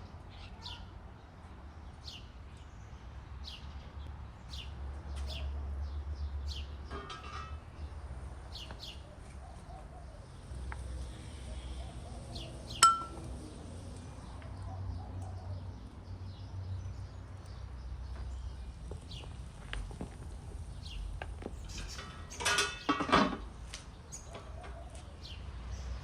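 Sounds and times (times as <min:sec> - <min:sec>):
small birds chirping: 0:00.0 - 0:06.9, 0:08.4 - 0:26.0
sharp metallic clink: 0:12.8 - 0:13.2.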